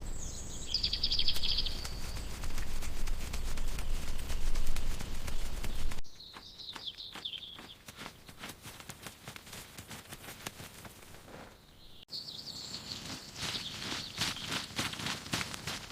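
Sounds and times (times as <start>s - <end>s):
bird-like chirps and trill: 0.1s - 2.6s, 3.8s - 8.4s.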